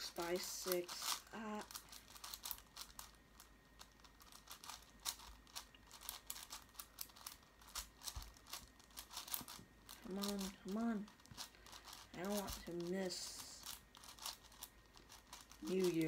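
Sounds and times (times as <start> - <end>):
puzzle cube plastic clicks: 0.4 - 16.0.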